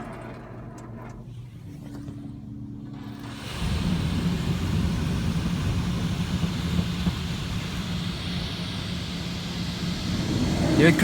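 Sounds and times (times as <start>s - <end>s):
pump motor hum: 0.0s - 11.0s
high-pressure water hissing: 3.1s - 11.0s.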